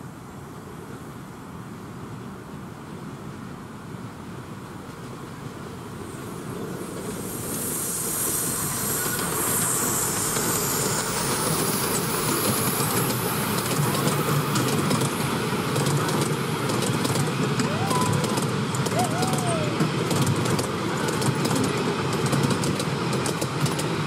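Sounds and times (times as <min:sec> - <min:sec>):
locomotive hiss: 0:00.0 - 0:24.0
miniature train passing: 0:01.9 - 0:24.0
wheels clicking over rail joints: 0:11.4 - 0:24.0.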